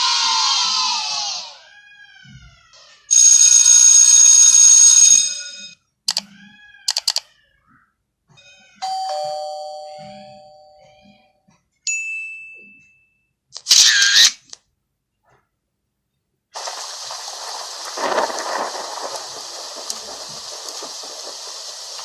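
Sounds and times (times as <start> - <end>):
loud multi-tone ring: 3.1 - 5.8, 8.8 - 11.2
short clicks: 6.1 - 6.3, 6.9 - 7.3, 13.6 - 14.6
ding-dong doorbell chime: 8.8 - 11.3, 11.9 - 13.3.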